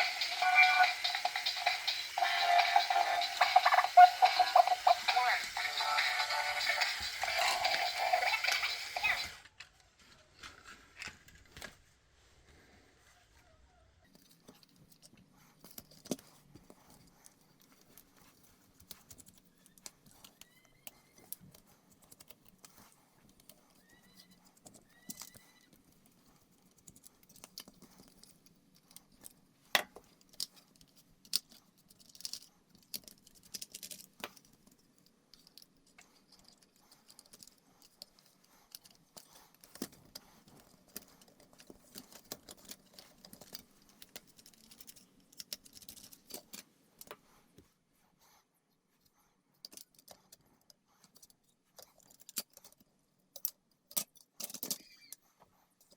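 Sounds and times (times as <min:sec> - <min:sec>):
plastic toy parts clicking: 0:14.1 - 0:47.2, 0:49.6 - 0:55.2.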